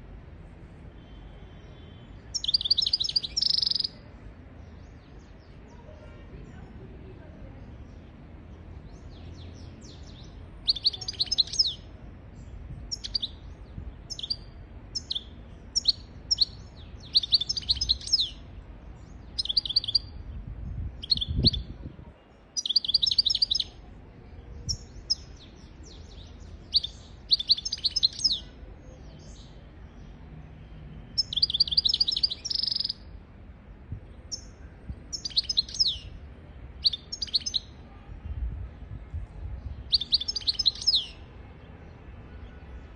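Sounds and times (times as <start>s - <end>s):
bird twittering song: 1.0s - 4.0s, 7.6s - 23.8s, 24.4s - 33.2s, 34.0s - 37.8s, 39.4s - 41.2s.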